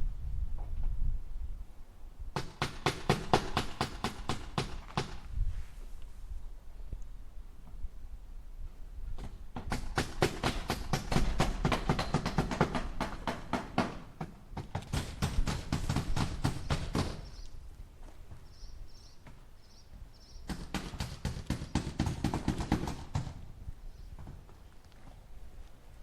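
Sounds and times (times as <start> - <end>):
hammer driving nails into wood: 2.4 - 5.2, 9.2 - 17.3, 20.5 - 23.4.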